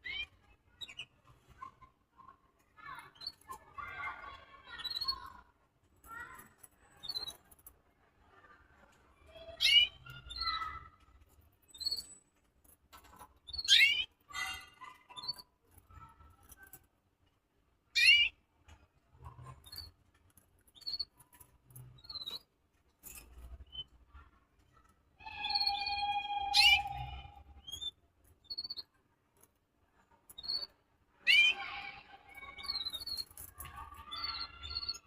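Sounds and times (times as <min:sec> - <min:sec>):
faint clicks and rustles: 0:00.2 - 0:26.2, 0:26.8 - 0:31.2, 0:32.0 - 0:35.0
birds chirping: 0:20.7 - 0:29.0.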